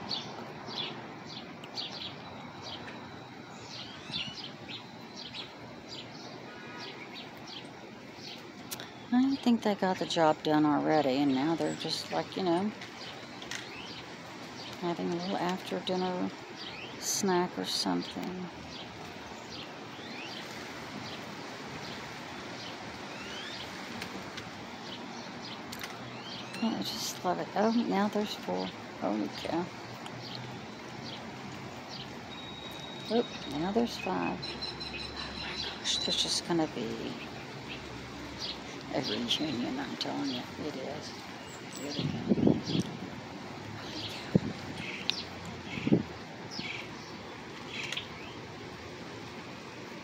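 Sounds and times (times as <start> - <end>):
birds chirping: 0.0 - 50.0
bird chirps: 0.1 - 10.4, 22.6 - 23.7, 31.9 - 42.9.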